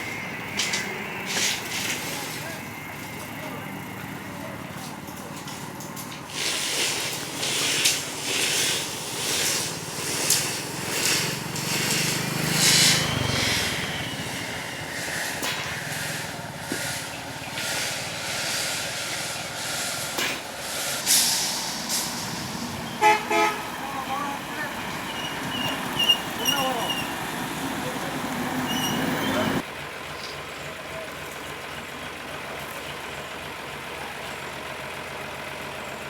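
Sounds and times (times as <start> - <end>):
hissing surges: 0.0 - 4.3, 6.3 - 29.6
construction machinery rumbling: 0.0 - 36.0.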